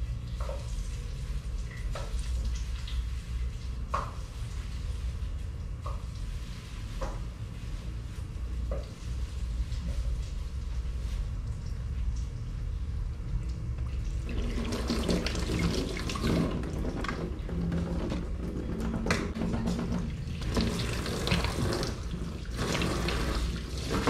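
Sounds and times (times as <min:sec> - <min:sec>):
steady low hum: 0:00.0 - 0:24.0
tap water splashing on dishes: 0:00.3 - 0:04.2, 0:13.4 - 0:24.0.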